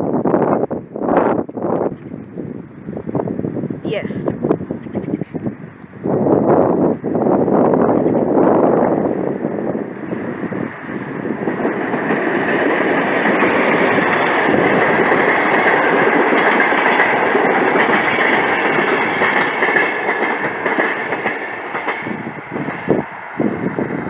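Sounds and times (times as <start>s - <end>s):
train wheels rumbling on rails: 0.0s - 24.0s
wheels clicking over rail joints: 10.6s - 22.6s.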